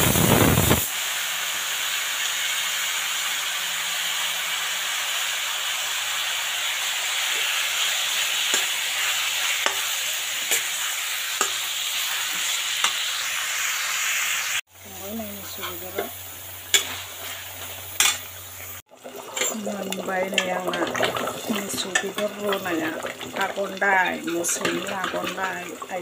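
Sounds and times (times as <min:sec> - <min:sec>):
meat sizzling in a pan: 0:00.0 - 0:26.0
metal spatula clinking on pan: 0:18.0 - 0:18.2.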